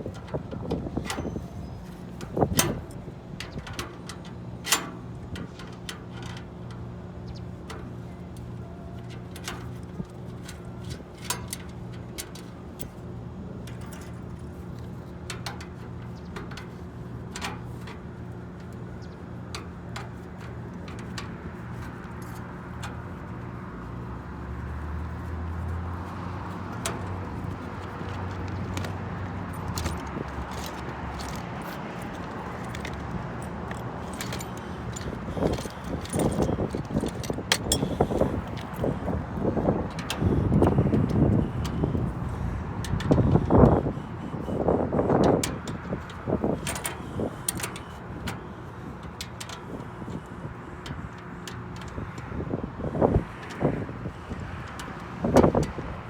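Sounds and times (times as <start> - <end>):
rough buffeting noise: 15.7 - 56.0.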